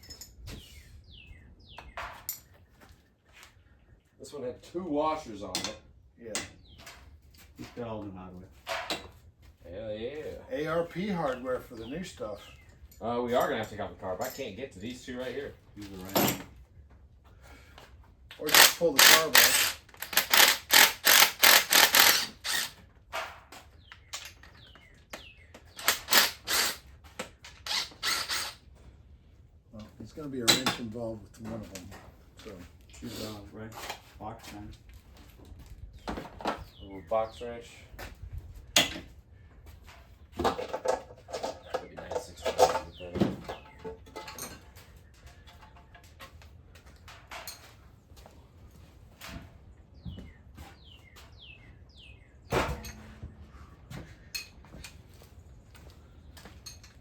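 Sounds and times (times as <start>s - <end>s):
hand tools clicking and tapping: 5.5s - 7.5s, 17.7s - 28.6s
ratchet wrench clicking: 18.5s - 22.8s.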